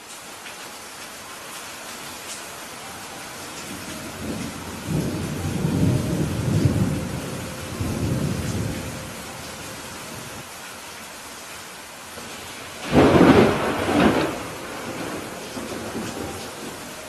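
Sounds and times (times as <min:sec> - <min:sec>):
steady rain: 0:00.0 - 0:17.0
thunder rumbling: 0:03.3 - 0:10.4, 0:12.2 - 0:17.0.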